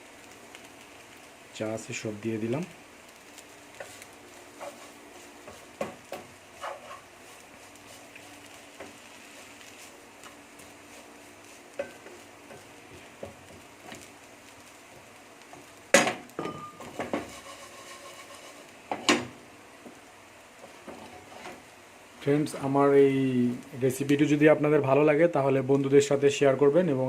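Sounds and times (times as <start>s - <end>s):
metal utensil scraping frying pan: 6.6s - 7.1s, 16.8s - 19.2s.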